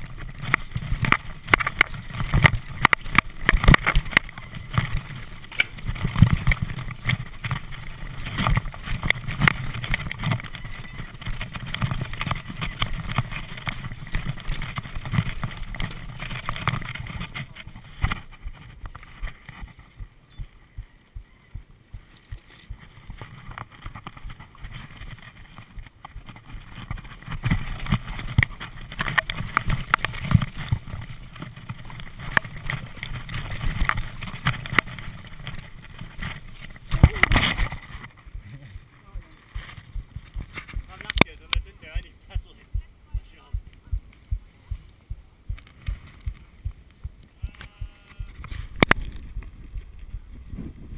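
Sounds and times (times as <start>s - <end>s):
bicycle clattering over rough ground: 0.0s - 20.9s, 22.1s - 38.4s, 39.2s - 42.6s
wind buffeting microphone: 0.0s - 50.9s.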